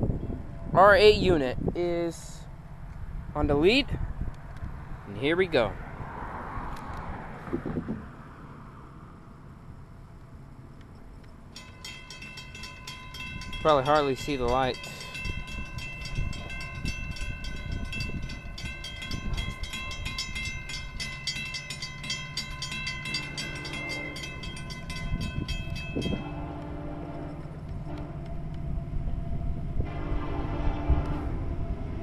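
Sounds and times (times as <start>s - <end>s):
diesel locomotive rumble: 0.0s - 32.0s
crossing bells ringing: 11.5s - 27.6s
locomotive horn blasts: 23.1s - 24.7s, 26.0s - 28.4s, 29.8s - 31.7s.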